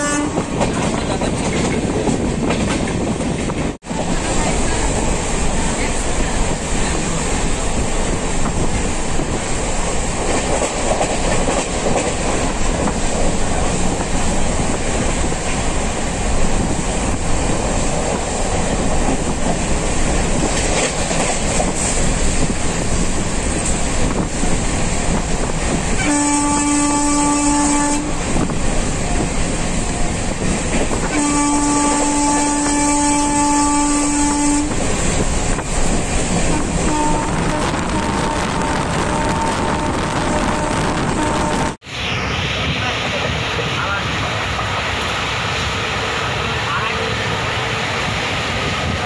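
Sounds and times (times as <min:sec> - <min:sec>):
locomotive horn blast: 0:00.0 - 0:00.5, 0:26.0 - 0:28.2, 0:31.0 - 0:34.8, 0:36.5 - 0:41.8
train wheels on rails: 0:00.0 - 0:49.0.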